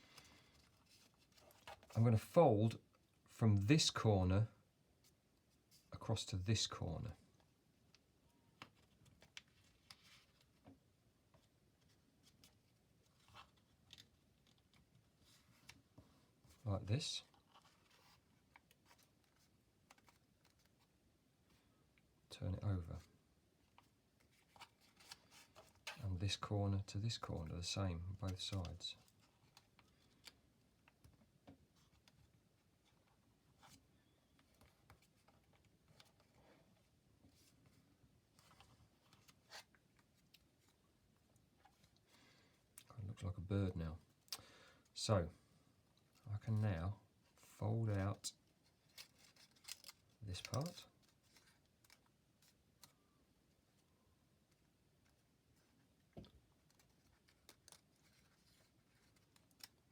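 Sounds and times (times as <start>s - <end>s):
paper being folded and creased: 0.0s - 2.3s, 8.6s - 10.6s, 11.3s - 15.8s, 16.5s - 21.6s, 23.7s - 40.8s, 47.2s - 53.8s, 54.4s - 59.9s
paper being folded: 47.3s - 53.1s, 56.5s - 59.9s.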